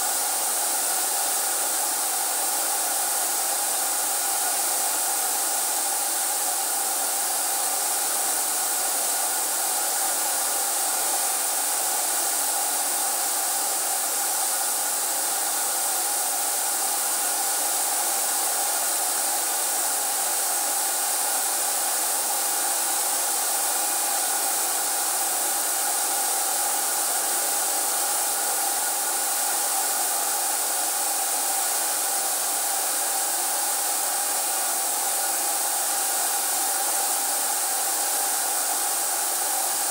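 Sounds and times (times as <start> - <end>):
electric air blower hissing: 0.0 - 39.9.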